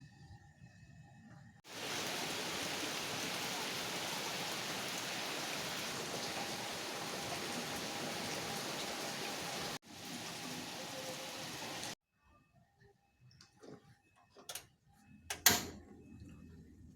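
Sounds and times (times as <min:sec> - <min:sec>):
heavy rain falling: 0:01.7 - 0:12.0.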